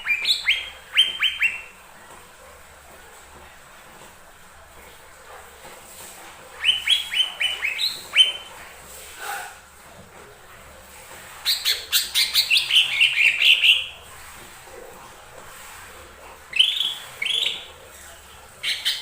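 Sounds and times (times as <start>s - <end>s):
bird chirping: 0.0s - 1.7s, 6.6s - 8.5s, 11.4s - 13.9s, 16.5s - 17.7s, 18.6s - 19.0s.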